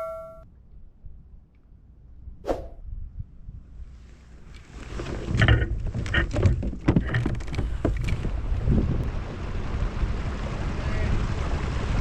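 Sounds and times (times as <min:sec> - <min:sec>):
wind rumbling on microphone: 0:00.5 - 0:12.0
gear knocking against kayak hull: 0:05.2 - 0:08.3.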